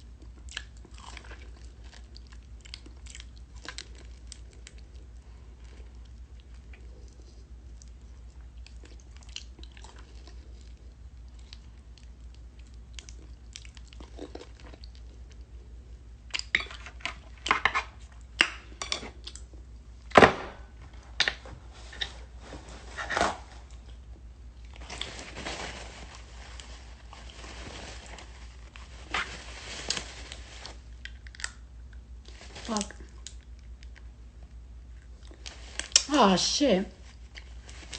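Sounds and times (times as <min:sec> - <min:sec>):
wet chewing and mouth smacks: 0:00.0 - 0:15.5, 0:16.3 - 0:19.8.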